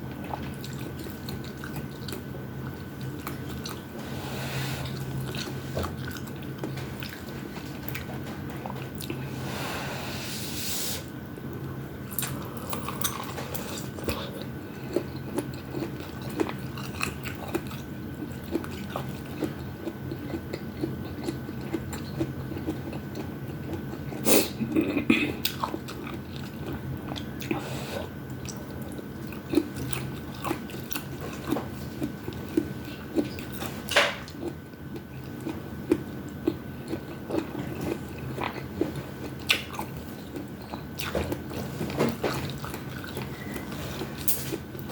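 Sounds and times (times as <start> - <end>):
chewing and biting food: 4.8 - 9.2, 12.1 - 24.2, 24.8 - 27.6, 28.2 - 44.9.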